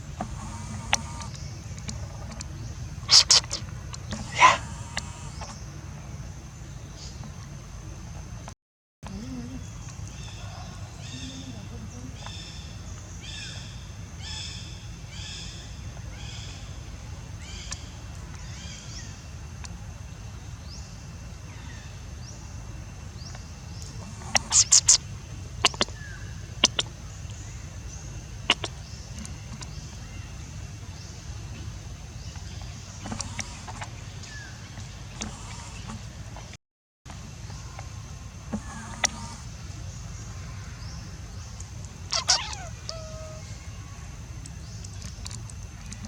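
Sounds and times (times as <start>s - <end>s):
high chirping animal calls: 0.1s - 1.5s, 2.1s - 5.7s, 42.1s - 44.0s.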